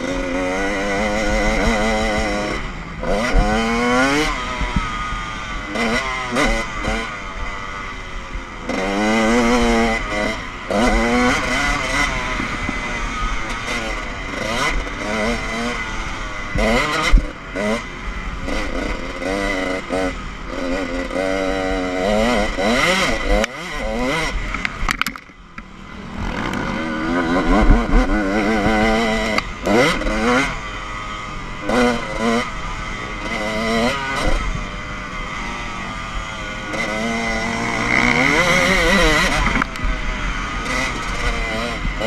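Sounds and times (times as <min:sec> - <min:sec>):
motocross bike engine revving: 0:00.0 - 0:42.0.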